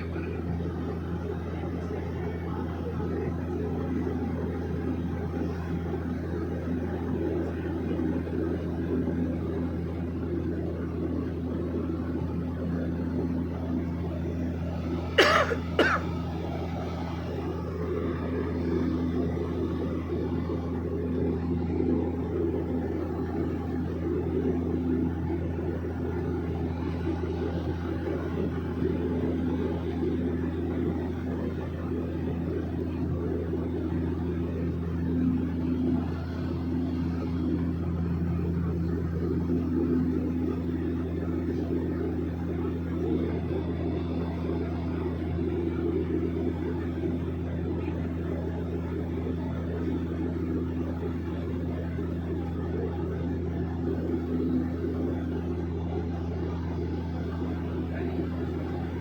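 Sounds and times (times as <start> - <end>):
small airplane engine drone: 0.0 - 59.0
person coughing: 15.2 - 16.1.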